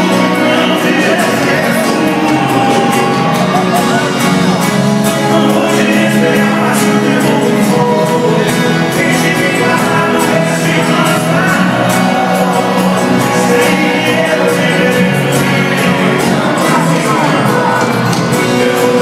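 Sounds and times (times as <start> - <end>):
live band playing with vocals: 0.0 - 19.0.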